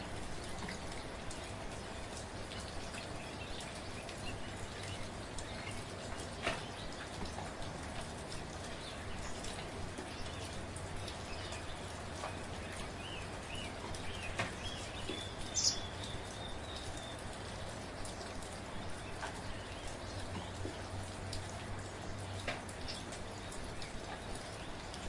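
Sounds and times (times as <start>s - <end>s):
light rain: 0.0s - 25.0s
raindrops ticking on a surface: 0.0s - 25.0s
bird chirping: 13.0s - 17.2s.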